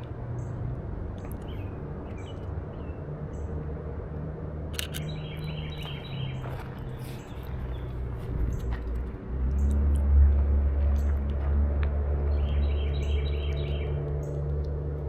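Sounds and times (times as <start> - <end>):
small birds chirping: 0.3 - 3.7, 4.8 - 9.8, 12.2 - 14.8.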